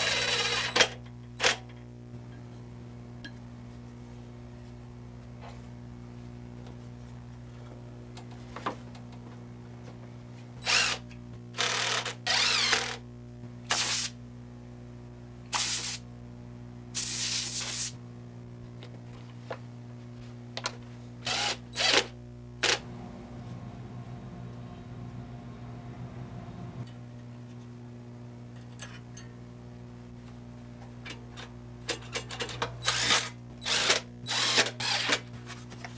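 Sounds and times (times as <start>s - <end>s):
steady low hum: 0.0s - 35.9s
short hissing bursts: 15.5s - 16.0s, 17.0s - 18.0s.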